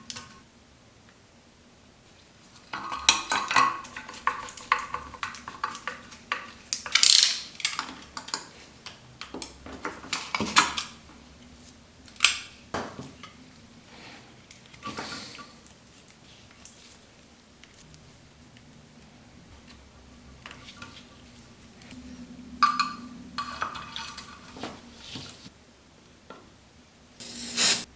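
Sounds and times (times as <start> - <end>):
metal scrape: 27.2 - 27.9
metal tools clinking: 27.2 - 27.9.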